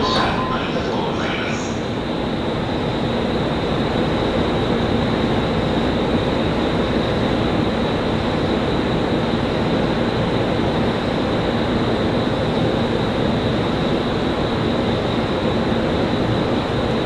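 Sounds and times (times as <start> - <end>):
train equipment whirring hum: 0.0 - 17.0.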